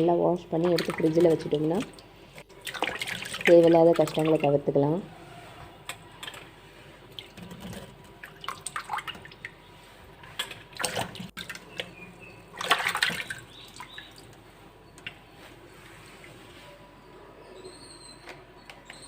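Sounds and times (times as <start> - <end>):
water splashing in a bowl: 0.6 - 4.7, 7.1 - 14.4.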